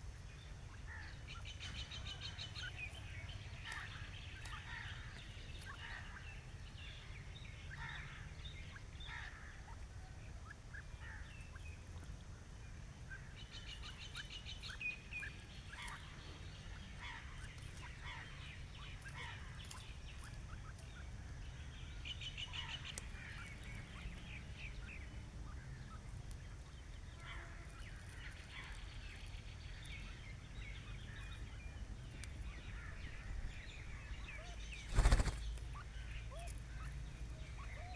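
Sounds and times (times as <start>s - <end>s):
birds chirping: 0.1s - 37.9s
rapid rattling bird calls: 13.1s - 37.9s.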